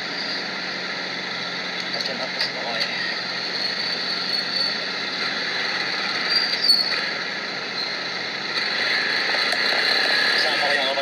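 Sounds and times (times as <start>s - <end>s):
vehicle road noise: 0.0s - 11.0s
high squeak: 6.2s - 7.0s.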